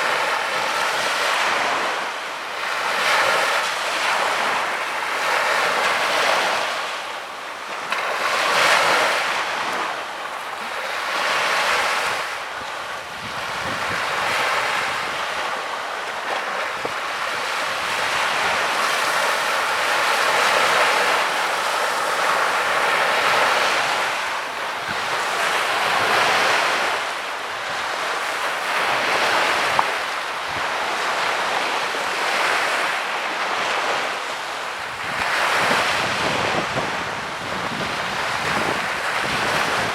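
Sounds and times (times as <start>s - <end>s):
small waves breaking on beach: 0.0s - 39.9s
wind on microphone: 8.0s - 39.9s.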